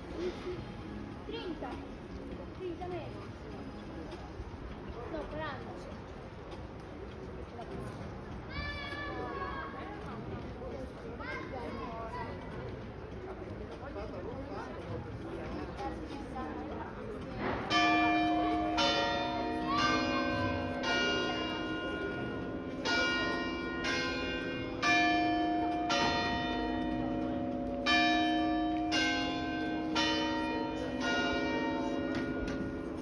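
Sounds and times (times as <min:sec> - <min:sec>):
church bells chiming a tune: 0:17.7 - 0:33.0.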